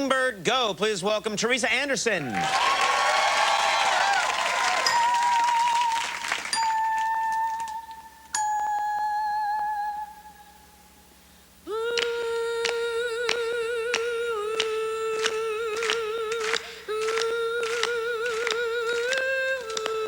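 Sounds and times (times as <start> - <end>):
woman humming: 11.6 - 20.0.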